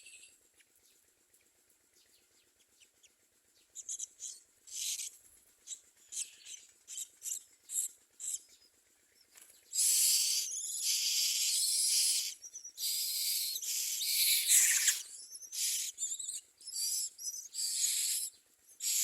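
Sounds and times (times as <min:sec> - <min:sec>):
bird harsh rasping call: 0:09.8 - 0:19.0
bird short high chirps: 0:09.8 - 0:19.0.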